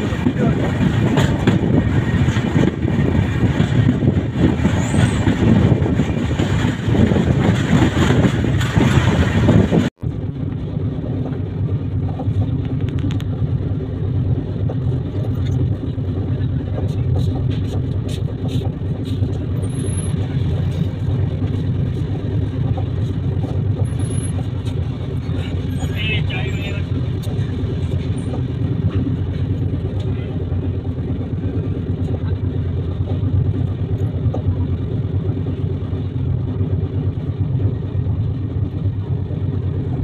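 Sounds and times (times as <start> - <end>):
train running rumble: 0.0 - 40.0.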